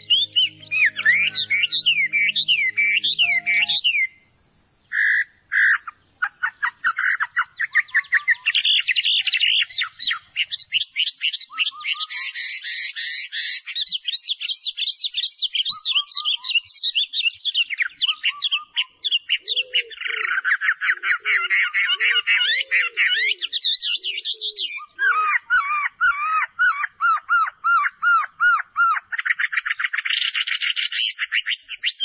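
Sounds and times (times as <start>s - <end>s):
lower falling bird notes: 0.0s - 4.0s
bird singing sweeping chirps: 0.0s - 4.2s
bird calls: 5.8s - 14.5s, 15.5s - 32.0s.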